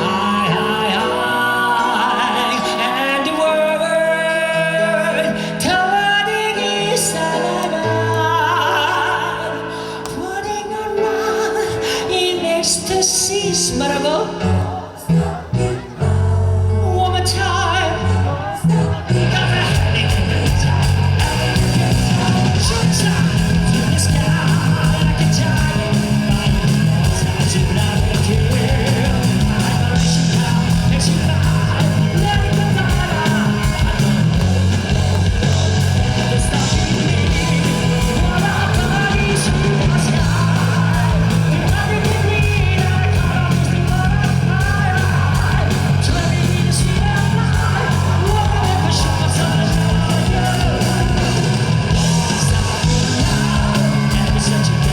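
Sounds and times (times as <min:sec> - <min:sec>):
bass guitar: 0:00.0 - 0:09.6, 0:12.7 - 0:54.9
singer yelling high vocals: 0:00.0 - 0:34.7
drums: 0:00.0 - 0:54.9
electric guitar: 0:00.0 - 0:54.9
live rock band playing: 0:00.0 - 0:54.9.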